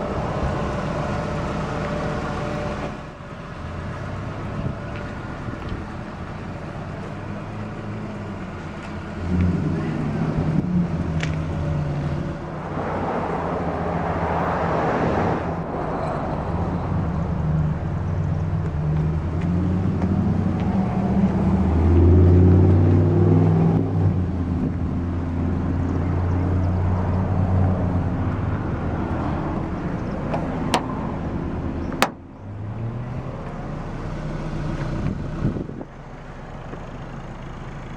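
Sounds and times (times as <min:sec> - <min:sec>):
car engine idling: 0:00.0 - 0:37.9
rushing noise: 0:12.2 - 0:18.3.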